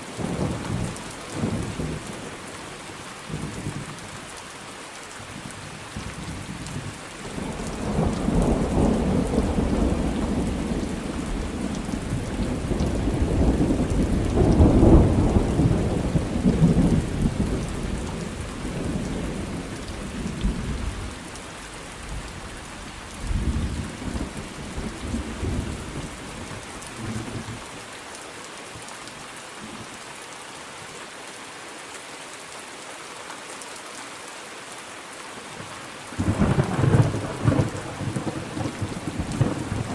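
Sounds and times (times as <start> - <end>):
steady rain falling: 0.0 - 39.9
rolling thunder: 7.5 - 19.6.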